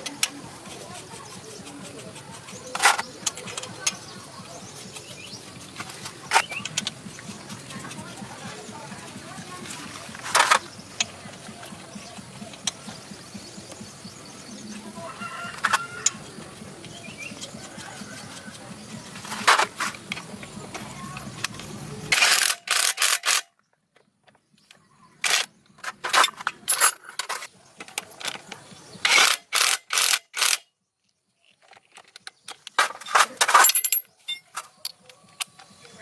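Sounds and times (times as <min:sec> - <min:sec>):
steady background noise: 0:00.0 - 0:30.6, 0:31.5 - 0:36.0
scraping and clinking: 0:25.2 - 0:27.5, 0:32.8 - 0:35.2.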